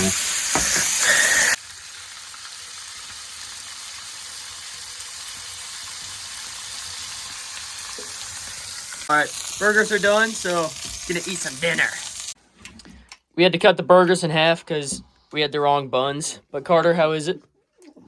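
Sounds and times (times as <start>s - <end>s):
loud hiss: 0.0s - 1.6s
burgers sizzling in a frying pan: 0.0s - 12.4s.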